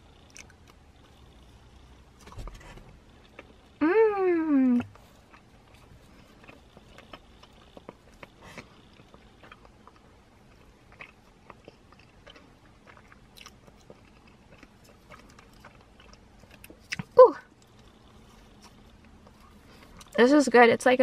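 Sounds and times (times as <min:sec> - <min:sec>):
quiet chewing: 0:00.0 - 0:03.8, 0:04.5 - 0:20.2.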